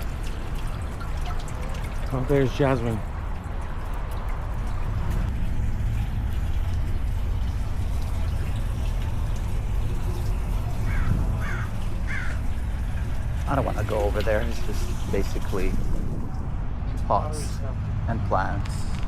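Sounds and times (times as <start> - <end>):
low rumble: 15.1 - 18.0.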